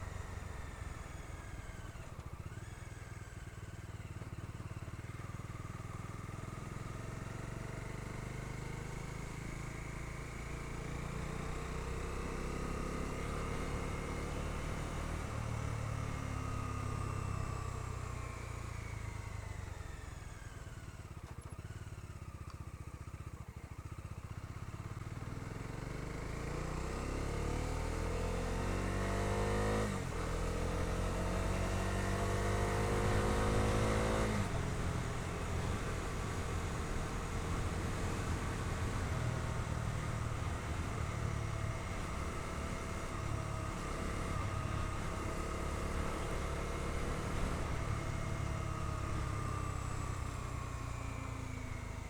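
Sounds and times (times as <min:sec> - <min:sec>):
motorcycle engine accelerating: 0:00.0 - 0:52.0
wind and road noise: 0:24.7 - 0:52.0.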